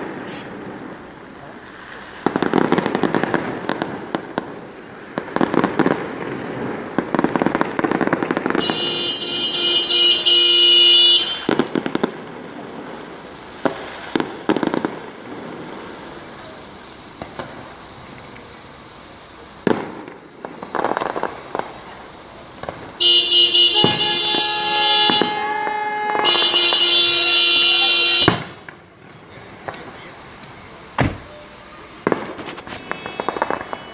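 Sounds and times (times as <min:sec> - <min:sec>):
fireworks bangs: 0:00.0 - 0:33.9
vehicle horns honking: 0:08.6 - 0:11.5, 0:23.0 - 0:28.5, 0:32.7 - 0:33.9.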